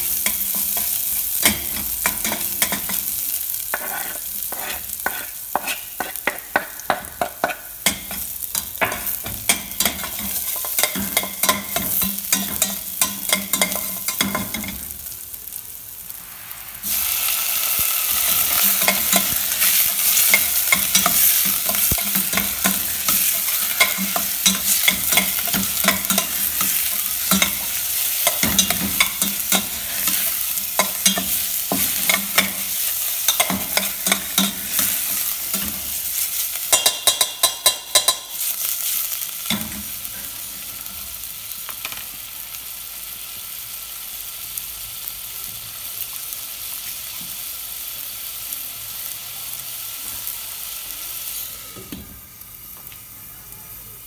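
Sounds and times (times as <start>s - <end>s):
chicken sizzling in oil: 0.0s - 54.0s
metal spoon stirring and scraping: 3.7s - 6.6s, 7.2s - 14.8s, 18.3s - 38.4s
spoon clinking on pot: 36.7s - 38.4s.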